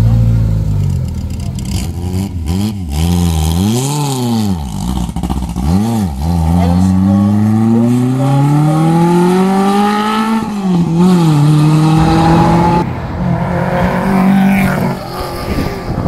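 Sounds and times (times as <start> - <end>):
race car engine accelerating: 5.6 - 16.0.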